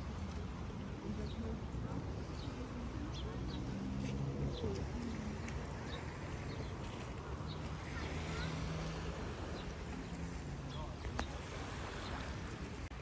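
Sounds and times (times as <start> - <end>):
birds chirping: 4.5 - 8.6.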